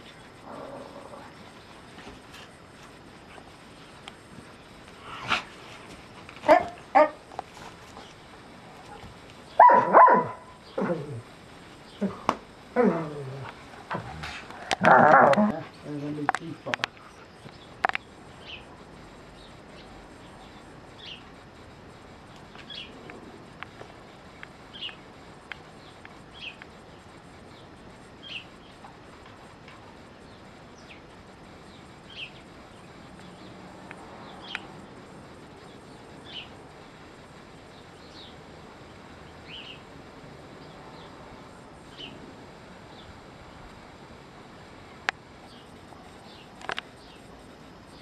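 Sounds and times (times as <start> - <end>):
faint outdoor hiss: 0.0 - 48.0
bird chirping: 25.7 - 28.8, 30.2 - 33.6, 35.6 - 36.6, 39.3 - 39.9.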